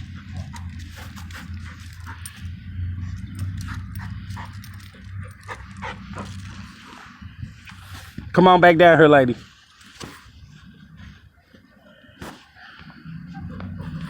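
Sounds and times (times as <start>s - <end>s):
steady low rumble: 0.0s - 9.6s, 12.8s - 14.0s.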